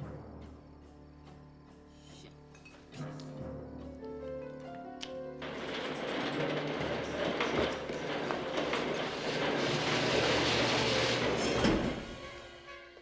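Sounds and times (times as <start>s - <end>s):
garage door clunk: 5.4s - 12.7s
garage door opener rattling: 5.4s - 12.7s.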